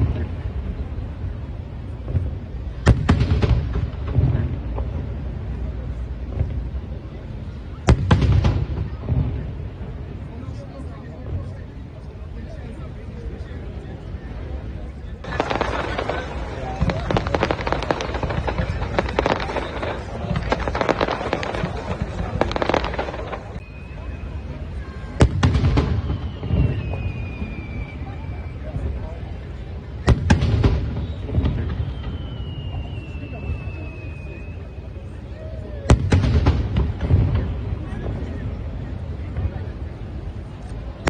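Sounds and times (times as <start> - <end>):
fireworks bangs: 0.0 - 12.0, 14.4 - 41.0
rumble of echoing reports: 3.6 - 26.2.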